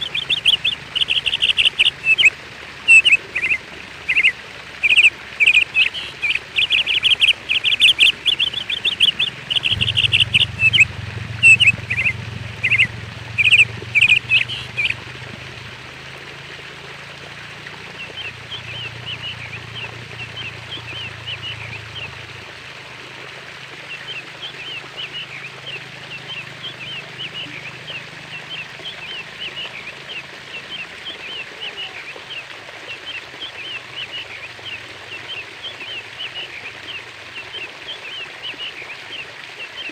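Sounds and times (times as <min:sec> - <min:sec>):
small birds chirping: 0:00.0 - 0:15.6
low hum: 0:05.2 - 0:22.6
steady hiss: 0:05.8 - 0:16.1.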